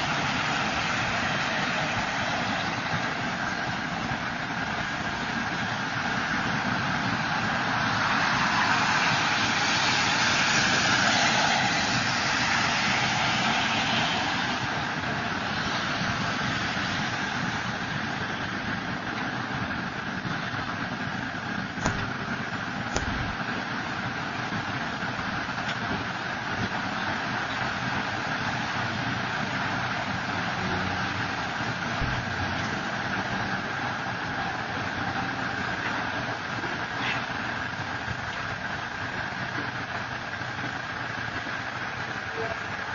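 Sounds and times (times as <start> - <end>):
freight train rumbling past: 0.0 - 17.8
sharp clicks: 22.9 - 23.3.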